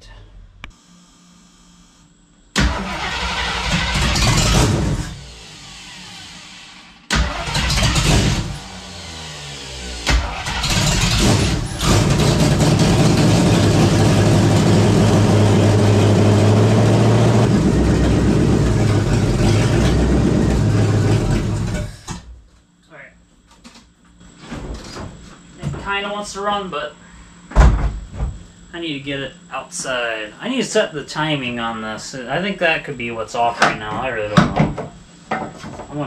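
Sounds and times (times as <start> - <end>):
car engine starting and running: 2.6 - 22.1.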